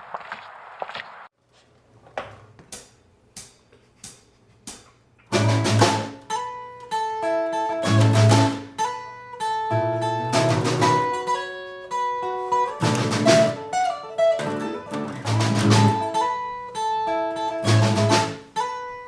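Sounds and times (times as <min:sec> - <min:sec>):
guitar picking single notes: 0:05.3 - 0:19.0.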